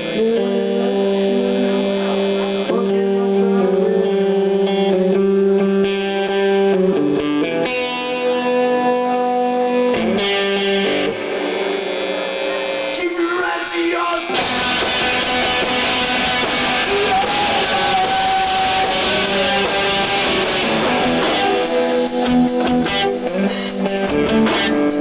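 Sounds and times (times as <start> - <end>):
electric guitar sustained chords: 0.0 - 25.0.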